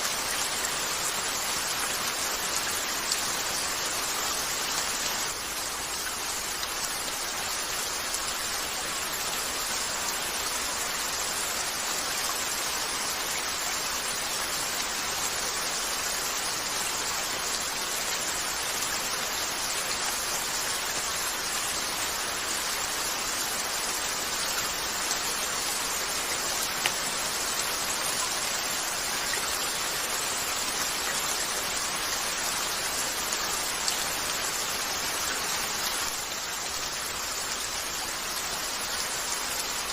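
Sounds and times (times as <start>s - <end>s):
gentle rain on a window: 0.0s - 39.9s.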